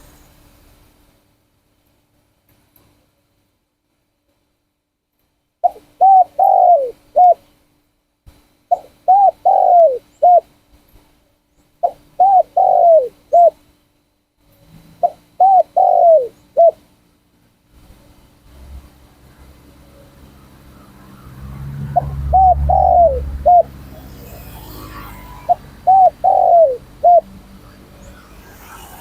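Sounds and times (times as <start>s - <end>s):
dove cooing: 5.6s - 7.4s, 8.7s - 10.4s, 11.8s - 13.6s, 15.0s - 16.8s, 20.4s - 29.0s.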